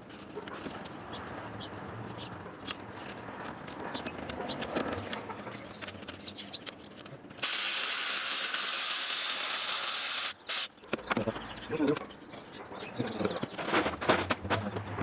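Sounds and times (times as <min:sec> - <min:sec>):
loud steady hiss: 0:07.4 - 0:10.7.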